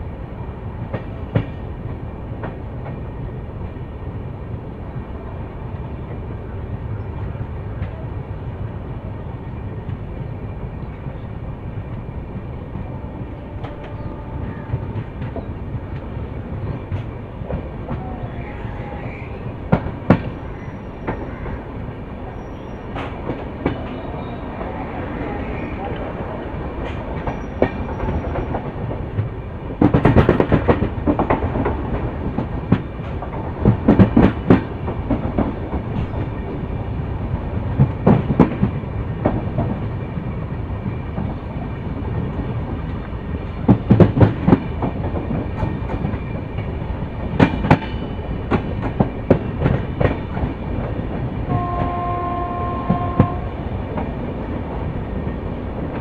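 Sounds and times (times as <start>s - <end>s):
train coaches rumbling on track: 0.0s - 56.0s
wheels clacking over rail joints: 42.1s - 56.0s.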